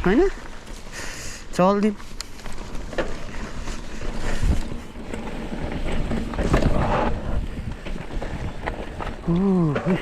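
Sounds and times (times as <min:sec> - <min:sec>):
wind buffeting microphone: 0:02.6 - 0:10.0
bike knocking over ground: 0:04.3 - 0:10.0.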